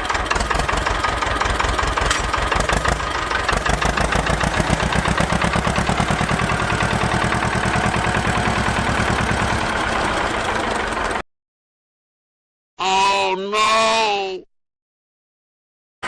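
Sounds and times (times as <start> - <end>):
small engine idling: 0.0 - 11.2.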